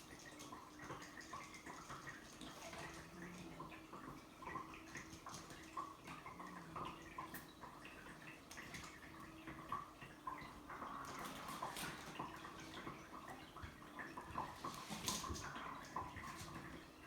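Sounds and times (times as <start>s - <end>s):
kittens tapping and scuffling: 13.6s - 16.8s.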